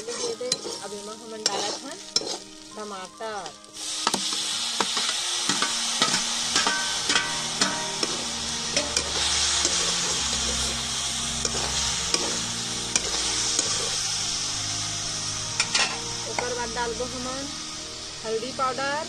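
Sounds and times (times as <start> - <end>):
metal ladle clinking and scraping: 0.0 - 2.4, 5.0 - 10.7, 15.6 - 16.0
food sizzling in oil: 0.0 - 19.0.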